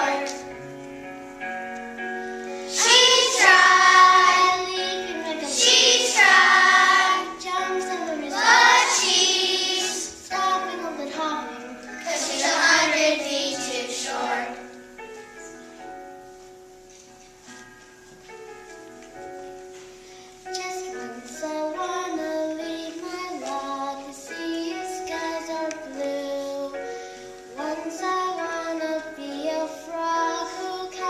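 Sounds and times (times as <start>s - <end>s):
children singing: 0.0s - 0.5s, 2.7s - 14.7s
instrumental accompaniment: 0.0s - 31.0s.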